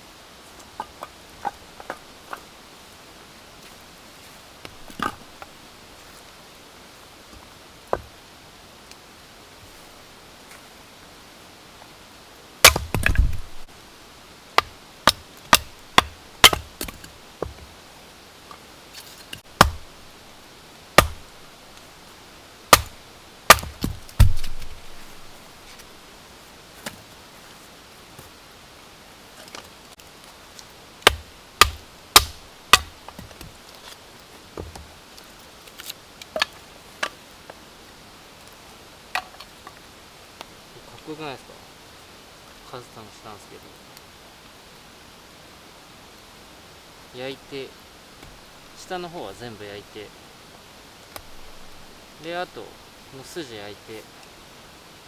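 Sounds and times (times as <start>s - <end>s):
axe chopping wood: 12.6s - 13.7s, 14.6s - 17.6s, 19.4s - 20.1s, 21.0s - 21.5s, 22.7s - 25.4s, 31.1s - 33.5s.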